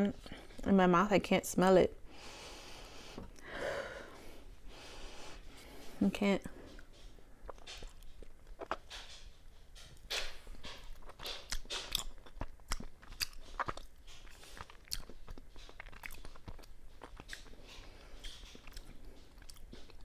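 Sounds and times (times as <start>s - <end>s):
close chewing with mouth clicks: 6.6s - 20.0s.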